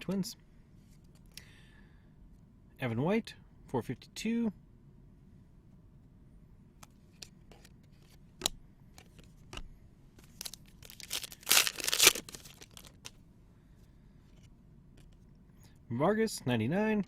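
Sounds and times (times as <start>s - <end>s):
card pack tearing and crinkling: 10.2s - 13.1s
card packs clicking and rustling: 10.2s - 13.2s.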